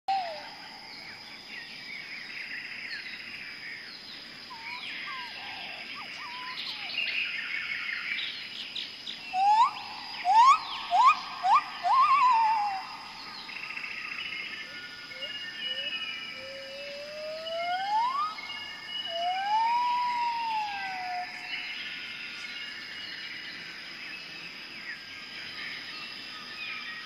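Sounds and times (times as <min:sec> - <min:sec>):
birds chirping and singing: 0:00.1 - 0:27.0
short rising bird calls: 0:09.3 - 0:13.6.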